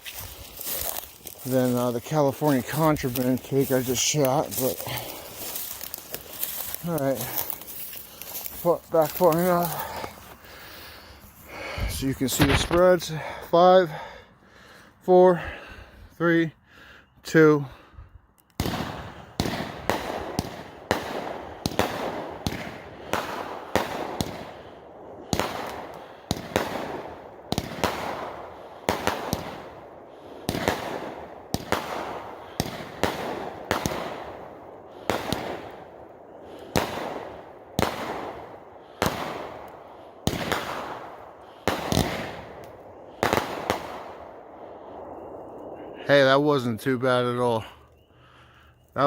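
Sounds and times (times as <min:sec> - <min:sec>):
firework crackle: 0:00.0 - 0:11.3, 0:41.6 - 0:44.2.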